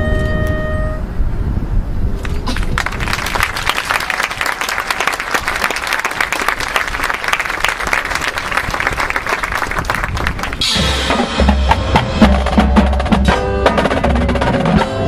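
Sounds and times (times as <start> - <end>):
crowd applauding: 2.2 - 10.7
marching band percussion: 10.2 - 15.0.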